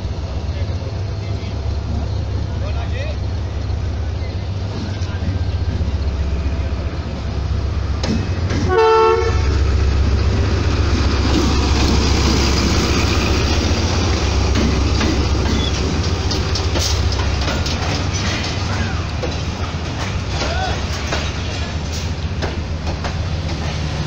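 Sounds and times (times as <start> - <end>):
diesel locomotive engine rumble: 0.0 - 24.0
passenger coaches rolling past: 0.0 - 24.0
train horn blast: 8.6 - 9.5.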